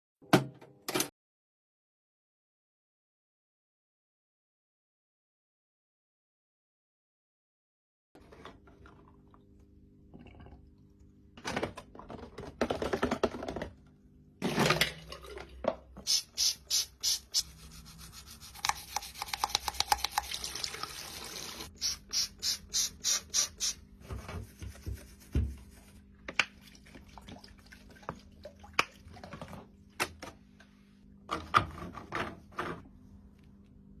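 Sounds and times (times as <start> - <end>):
rhythmic scrubbing strokes: 16.1 - 20.3.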